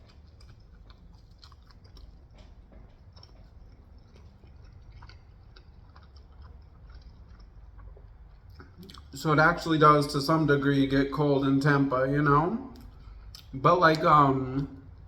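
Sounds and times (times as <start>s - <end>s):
person chewing food: 0.0s - 9.2s, 12.7s - 14.1s, 14.7s - 15.0s
small mouth clicks: 3.2s - 9.2s.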